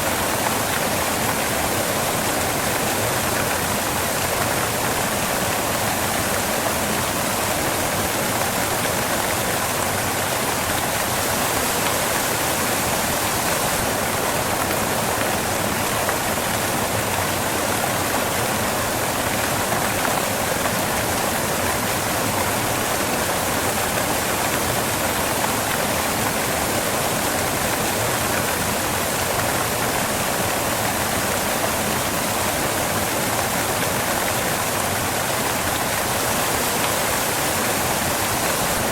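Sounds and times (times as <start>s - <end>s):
waterfall pouring onto rocks: 0.0s - 38.9s.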